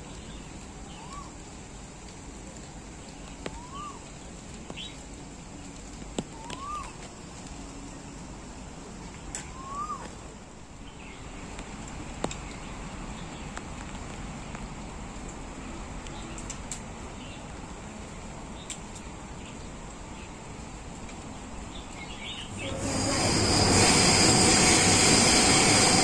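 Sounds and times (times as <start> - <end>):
outdoor background noise: 0.0 - 26.0
bird whistled call: 6.4 - 7.0, 9.5 - 10.1.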